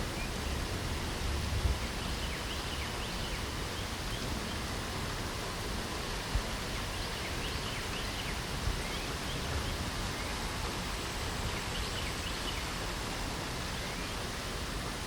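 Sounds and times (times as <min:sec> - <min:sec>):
light rain hiss: 0:00.0 - 0:15.0
small birds chirping: 0:01.6 - 0:04.8, 0:06.6 - 0:10.5, 0:11.2 - 0:12.8.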